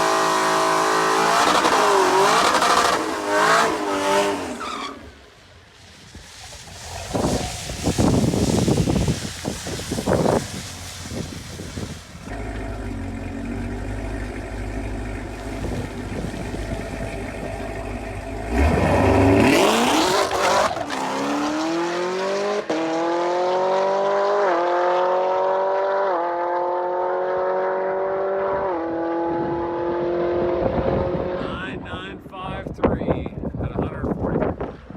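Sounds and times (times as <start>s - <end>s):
car accelerating and shifting gears: 0.0s - 5.1s, 6.3s - 31.6s
car engine idling: 10.4s - 19.8s.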